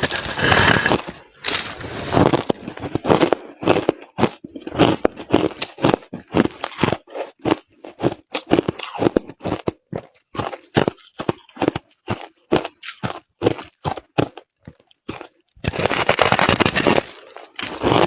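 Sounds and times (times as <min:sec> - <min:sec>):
chewing crushed ice: 0:00.0 - 0:18.0.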